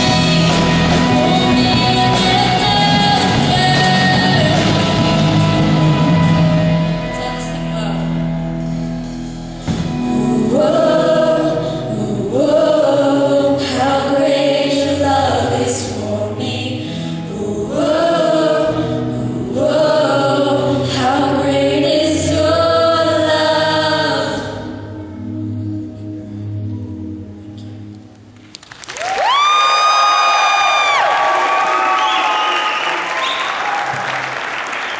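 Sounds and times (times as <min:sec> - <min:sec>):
choir singing: 0:09.9 - 0:25.0.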